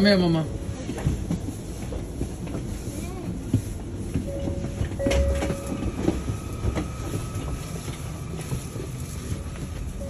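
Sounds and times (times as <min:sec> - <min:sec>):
train rumble: 0:00.0 - 0:10.0.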